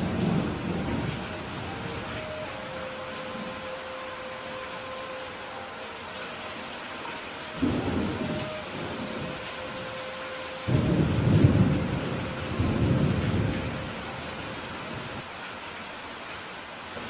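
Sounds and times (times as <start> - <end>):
thunder rumbling: 0.0 - 3.6, 7.6 - 15.2
heavy rainfall: 0.0 - 17.0.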